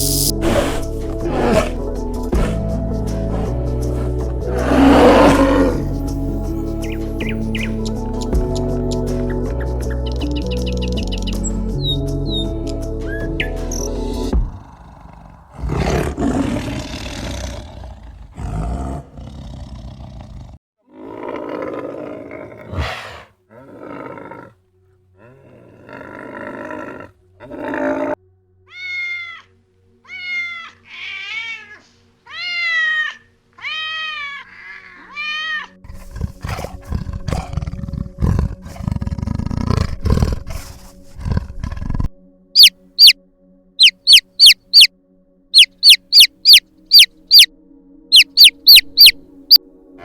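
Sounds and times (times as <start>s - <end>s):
big cat growling roars: 0.4s - 5.9s, 14.4s - 24.6s, 25.2s - 28.2s, 35.9s - 42.1s
rapid rough pulsing calls: 42.6s - 43.2s, 43.8s - 44.9s, 45.6s - 47.5s, 48.1s - 49.2s.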